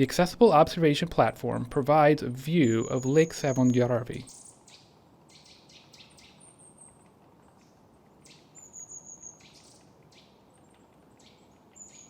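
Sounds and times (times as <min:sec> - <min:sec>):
faint bird chirps and whistle: 0:02.6 - 0:07.0, 0:08.2 - 0:10.4, 0:11.2 - 0:12.0.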